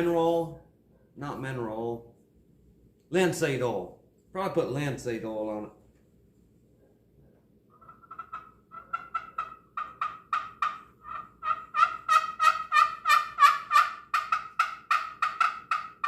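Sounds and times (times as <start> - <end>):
wooden turkey call yelps: 7.7 - 16.0.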